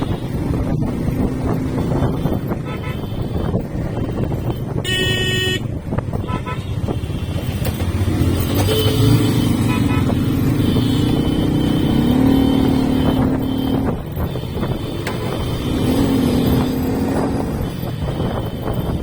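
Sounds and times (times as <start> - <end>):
motorcycle engine: 0.0 - 19.0
road noise: 0.0 - 19.0
vehicle horn honking: 1.8 - 7.3, 8.6 - 15.9.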